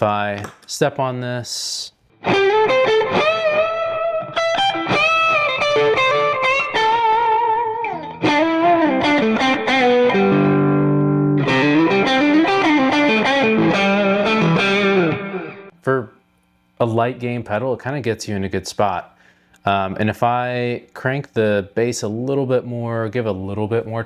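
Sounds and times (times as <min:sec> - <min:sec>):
overdriven electric guitar solo: 0:02.2 - 0:15.7.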